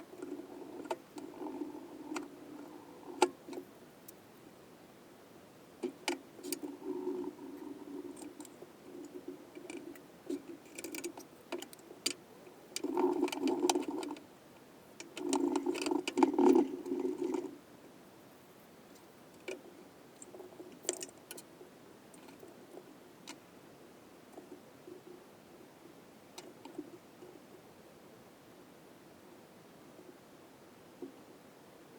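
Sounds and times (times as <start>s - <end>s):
sharp clicks and light knocks: 8.2s - 12.2s.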